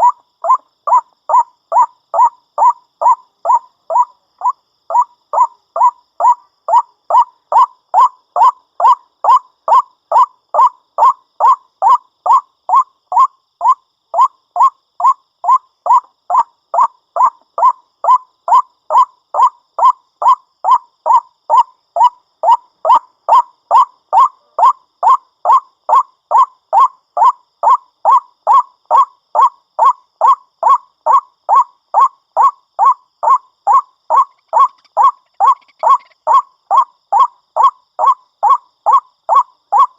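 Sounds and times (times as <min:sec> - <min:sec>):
bird calling harsh notes: 0:34.1 - 0:36.4.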